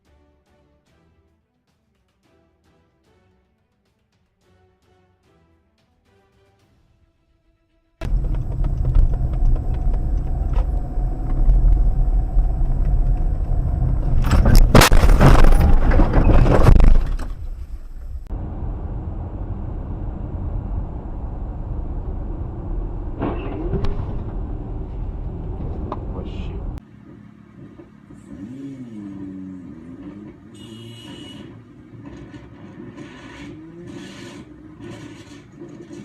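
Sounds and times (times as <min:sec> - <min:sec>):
car road and engine rumble: 0:08.0 - 0:36.0
loud car collision: 0:14.1 - 0:18.3, 0:23.0 - 0:24.9.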